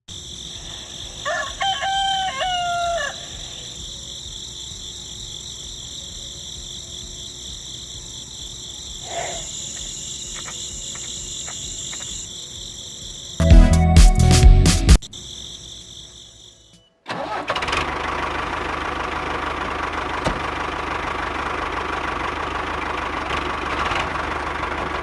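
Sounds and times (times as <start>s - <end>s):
insects droning: 0.1s - 13.4s, 15.0s - 25.0s
rooster crowing: 1.0s - 3.9s
faint ticks: 5.6s - 12.4s.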